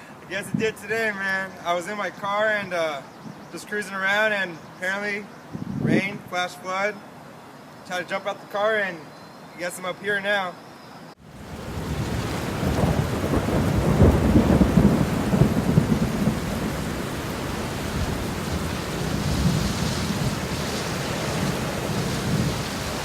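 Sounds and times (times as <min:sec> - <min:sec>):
heavy rain: 0:11.2 - 0:23.0
thunder rolling: 0:11.3 - 0:23.0.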